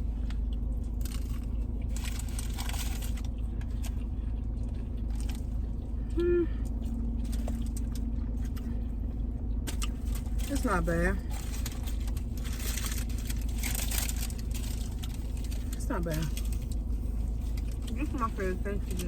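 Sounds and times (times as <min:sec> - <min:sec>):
car cabin hum: 0:00.0 - 0:19.0
chewing: 0:00.0 - 0:19.0
food packaging rustling: 0:00.8 - 0:04.0, 0:09.7 - 0:19.0
person humming: 0:06.1 - 0:06.6.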